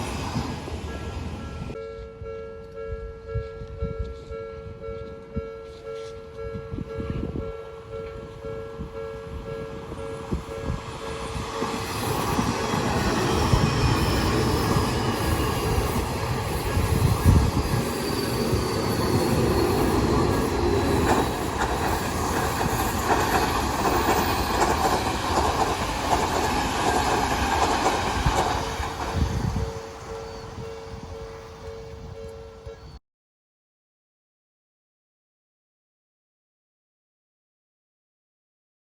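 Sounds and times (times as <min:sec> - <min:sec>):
electric train running past: 0:00.0 - 0:03.4, 0:04.0 - 0:33.0
high wheel squeal: 0:11.1 - 0:23.3.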